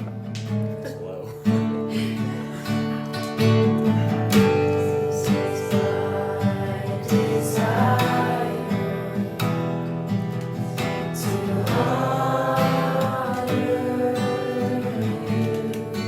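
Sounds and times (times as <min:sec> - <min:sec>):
acoustic guitar strumming: 0:00.0 - 0:16.0
person singing softly: 0:04.4 - 0:09.5, 0:11.2 - 0:16.0.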